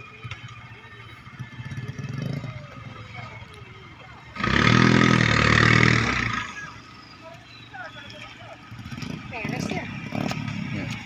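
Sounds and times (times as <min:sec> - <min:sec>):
vehicle engine revving: 0:01.2 - 0:03.5, 0:04.2 - 0:07.2, 0:08.6 - 0:11.0.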